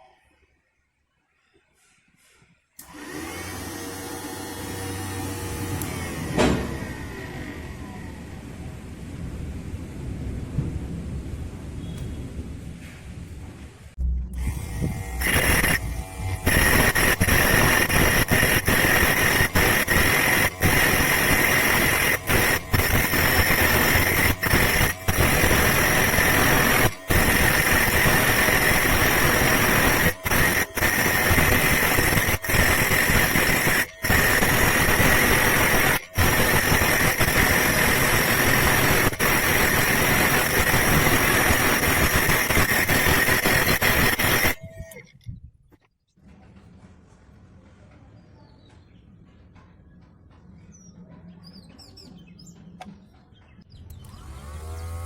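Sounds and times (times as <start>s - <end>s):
angle grinder grinding: 2.8s - 8.2s, 14.3s - 45.2s.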